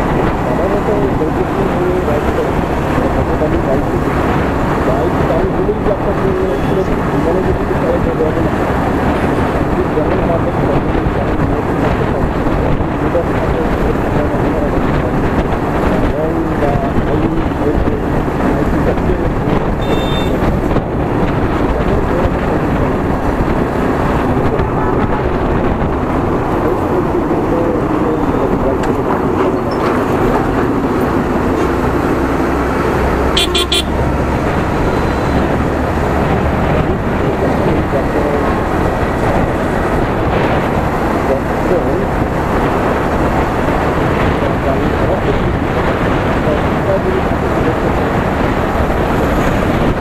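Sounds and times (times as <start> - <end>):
road and wind noise: 0.0 - 50.0
traffic: 0.0 - 50.0
horn toots: 19.8 - 20.5, 33.3 - 34.1
motorcycle engine running: 30.1 - 50.0.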